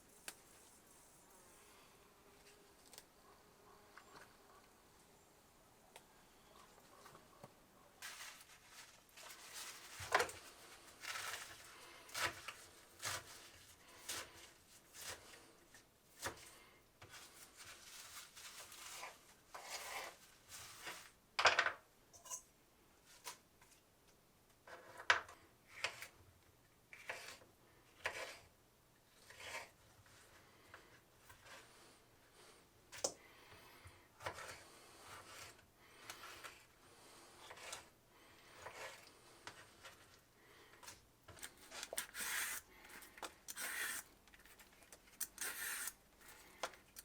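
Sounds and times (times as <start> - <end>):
rustling and rubbing of plants: 8.0 - 21.2.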